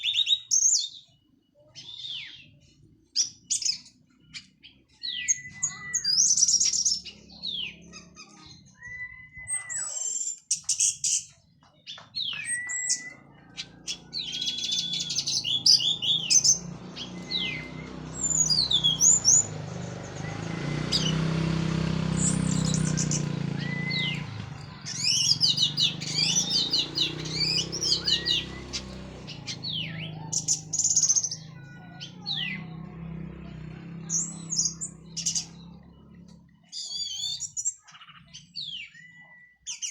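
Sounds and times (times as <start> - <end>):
thrush singing: 13.1 - 37.5.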